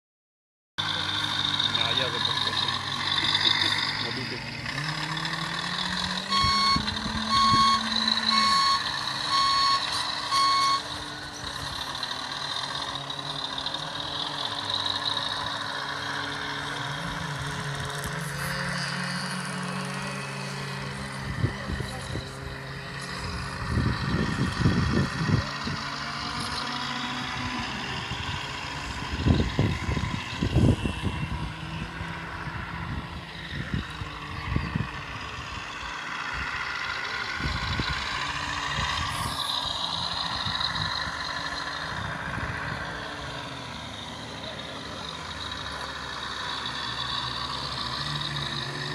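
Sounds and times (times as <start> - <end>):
model truck drivetrain whining: 0.8 - 48.9.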